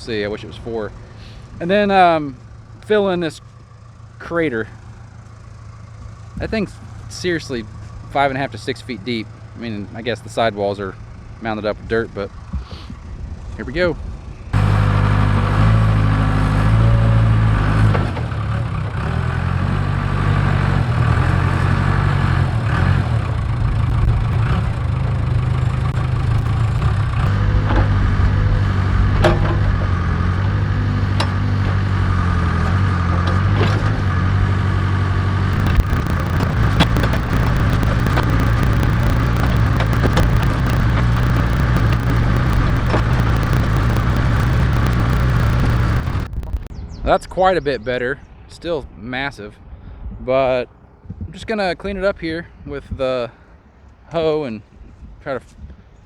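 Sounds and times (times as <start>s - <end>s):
diesel engine running: 0.0s - 46.8s.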